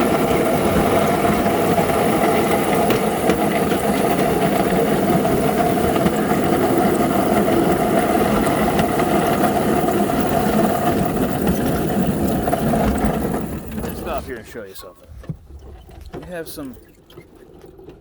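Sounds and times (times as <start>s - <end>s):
small engine idling: 0.0s - 18.0s.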